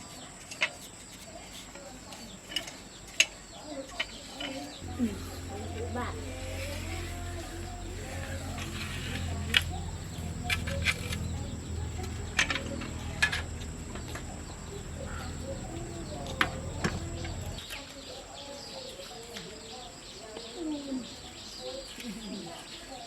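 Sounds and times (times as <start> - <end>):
birds chirping: 2.0 - 23.0
low machine hum: 4.8 - 17.6.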